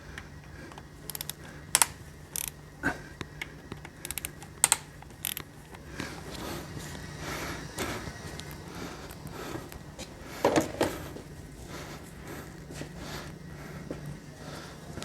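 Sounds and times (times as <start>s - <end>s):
faint steady hum: 0.0s - 15.0s
ratchet ratcheting: 1.0s - 2.6s, 3.7s - 5.8s
metallic tool clicks: 1.1s - 2.6s, 3.4s - 5.8s.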